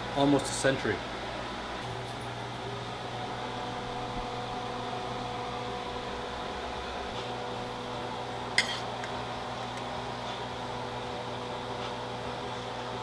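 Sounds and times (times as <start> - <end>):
kitchen appliance humming: 0.9 - 12.5
sharp clink: 8.6 - 9.2.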